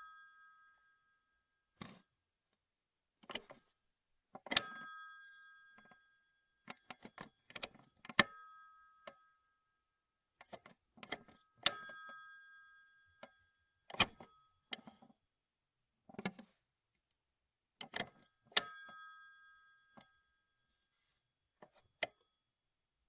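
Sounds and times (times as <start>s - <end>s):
telephone bell ringing: 4.6s - 6.3s.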